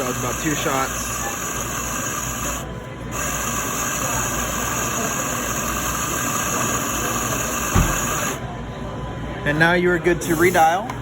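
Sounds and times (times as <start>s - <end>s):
espresso grinder grinding beans: 0.0s - 8.4s.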